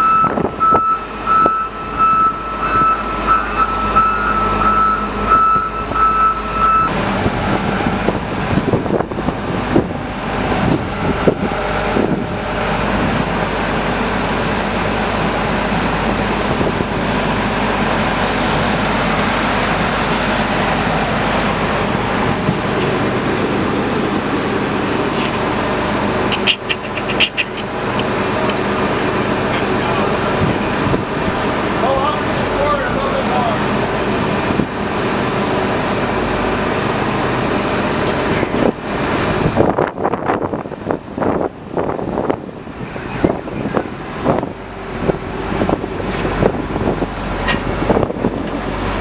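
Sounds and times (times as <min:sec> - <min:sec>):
reversing alarm beeping: 0:00.0 - 0:06.9, 0:29.6 - 0:31.7
vehicle engine running loudly: 0:06.9 - 0:49.0
machinery noise: 0:17.2 - 0:34.4, 0:35.1 - 0:40.4, 0:42.4 - 0:49.0.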